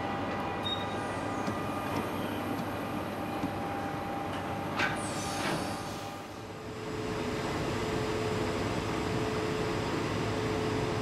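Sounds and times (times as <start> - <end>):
train wheels squealing on rails: 0.6 - 2.5, 4.9 - 6.2.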